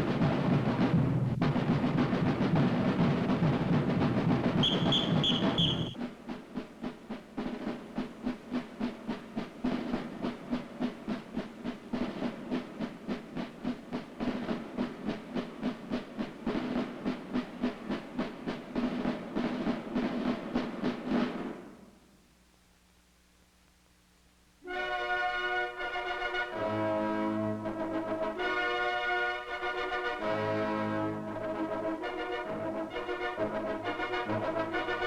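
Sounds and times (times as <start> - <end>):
marching band playing: 0.0 - 21.6, 24.7 - 35.0
drum line marching beat: 0.0 - 21.8, 31.2 - 35.0
whistle blasts: 4.6 - 6.0.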